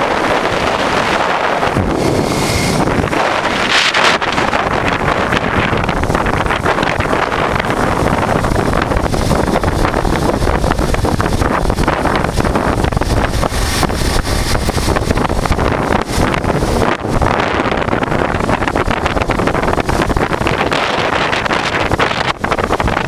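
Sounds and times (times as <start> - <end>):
motorcycle engine running: 0.0 - 23.0
wind buffeting microphone: 0.0 - 23.0.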